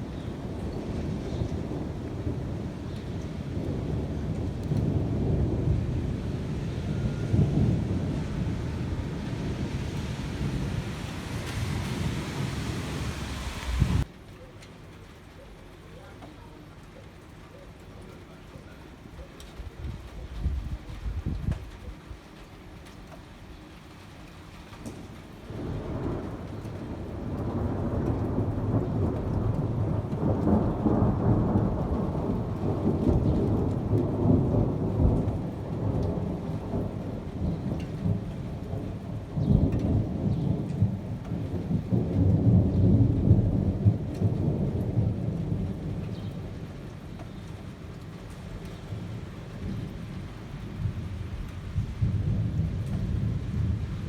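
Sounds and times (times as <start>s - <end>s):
rolling thunder: 0.0s - 14.1s, 25.5s - 54.0s
steady rain: 0.0s - 54.0s
sharp thunder peal: 4.8s - 14.1s.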